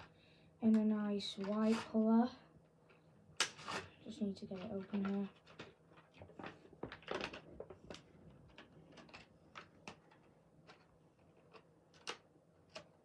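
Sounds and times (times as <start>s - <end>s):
plastic packaging clicks and crinkles: 4.5s - 12.9s.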